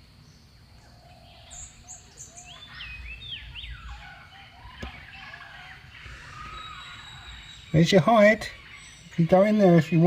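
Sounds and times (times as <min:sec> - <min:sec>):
bird chirping and whistling: 0:01.4 - 0:10.0.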